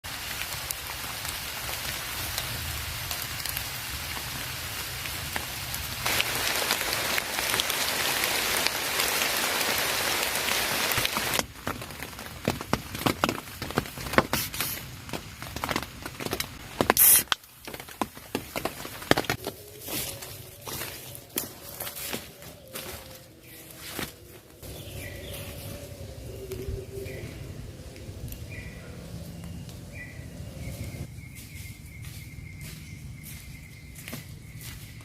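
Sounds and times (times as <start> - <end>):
heavy rain: 0.0 - 16.9.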